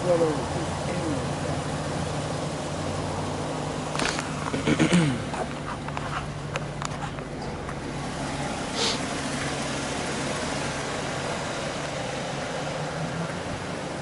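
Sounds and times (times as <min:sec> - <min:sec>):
car engines idling: 0:00.0 - 0:14.0
short hiss: 0:08.7 - 0:09.1.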